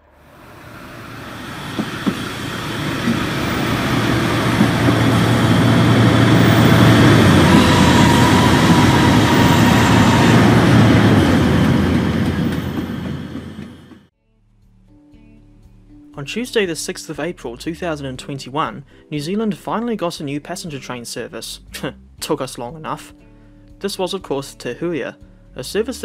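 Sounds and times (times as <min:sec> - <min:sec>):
passing train rumble: 0:00.0 - 0:14.1.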